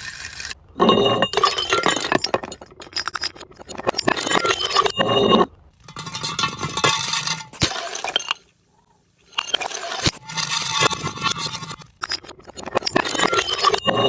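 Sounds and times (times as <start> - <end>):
glass bottles shattering: 0.0 - 3.2.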